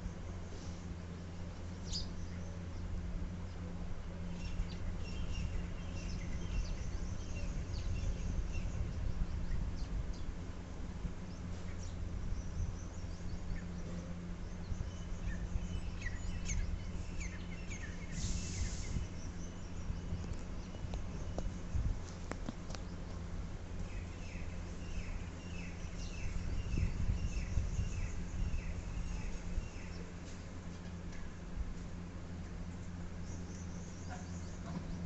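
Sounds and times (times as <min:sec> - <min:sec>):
sparrows chirping: 0:00.0 - 0:35.0
short hissing burst: 0:18.0 - 0:19.2.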